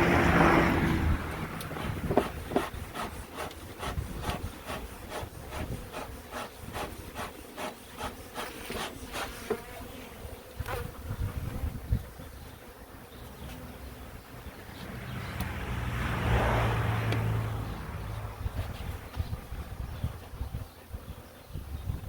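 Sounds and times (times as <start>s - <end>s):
honeybees buzzing: 0.0s - 22.0s
quick scraping strokes: 1.6s - 9.6s.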